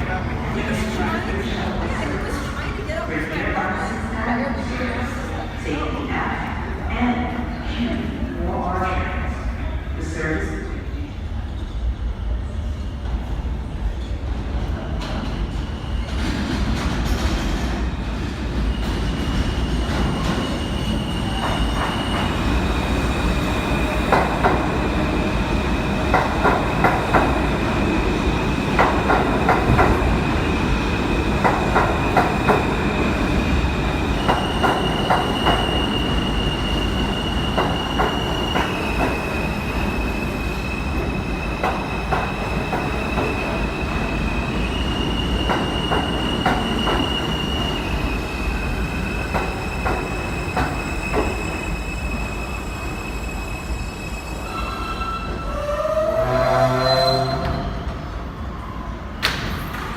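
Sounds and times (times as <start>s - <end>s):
subway train rumble: 0.0s - 59.9s
train wheels clicking on rails: 16.1s - 52.2s.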